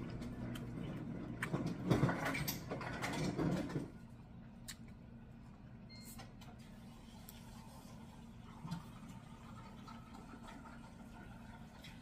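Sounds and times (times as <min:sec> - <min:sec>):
chewing and lip-smacking: 0:00.0 - 0:01.8, 0:04.5 - 0:05.0.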